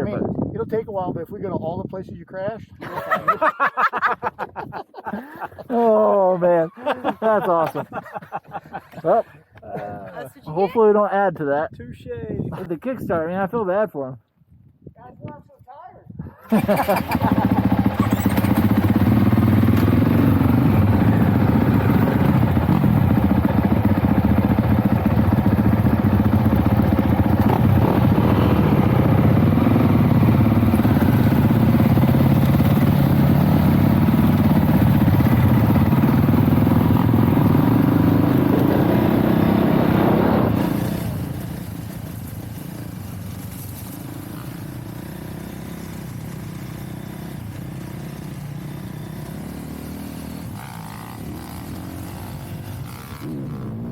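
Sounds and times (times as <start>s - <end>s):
dirt bike engine running: 16.5s - 53.9s.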